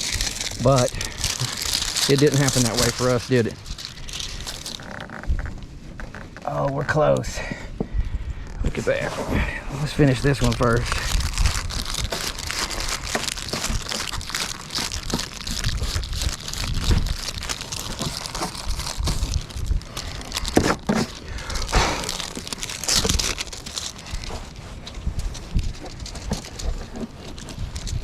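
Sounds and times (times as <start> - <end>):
crinkling rustling material: 0.0 - 6.3, 9.8 - 28.0
wind rumble on microphone: 0.0 - 20.6, 21.2 - 28.0.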